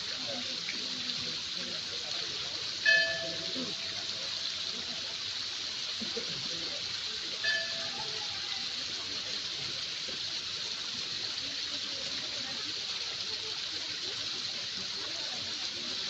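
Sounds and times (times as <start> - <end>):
waterfall rushing: 0.0 - 5.3, 5.9 - 9.2.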